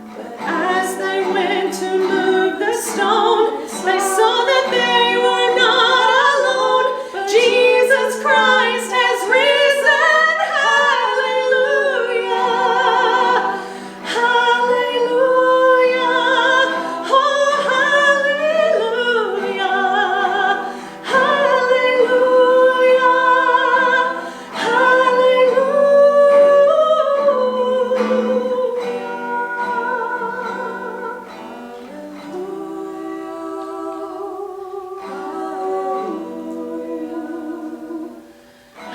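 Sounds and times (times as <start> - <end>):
voices singing in harmony: 0.0 - 38.9.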